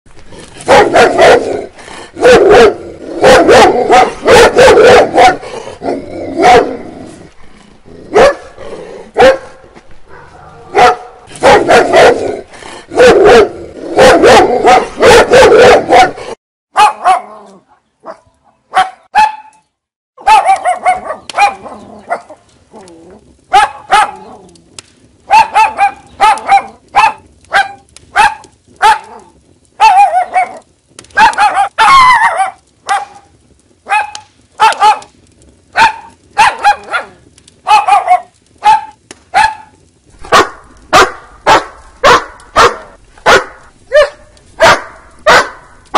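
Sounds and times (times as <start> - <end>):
small dog barking: 0.7 - 1.5, 2.2 - 5.4, 6.4 - 6.8, 8.1 - 8.5, 9.2 - 9.6, 10.7 - 12.2, 13.0 - 17.4, 18.0 - 19.5, 20.2 - 22.4, 23.5 - 24.3, 25.3 - 29.2, 29.8 - 30.6, 31.2 - 33.2, 33.9 - 35.1, 35.8 - 39.7, 40.3 - 45.7.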